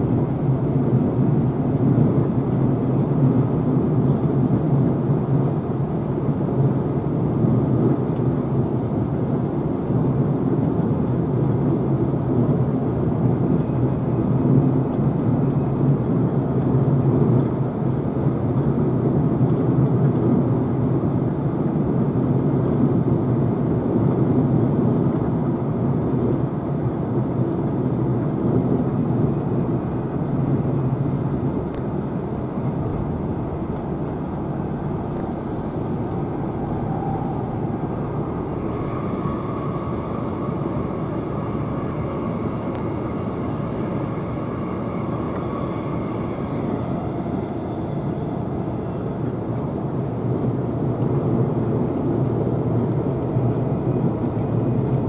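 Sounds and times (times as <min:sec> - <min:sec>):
train wheels rumbling: 0:00.0 - 0:55.0.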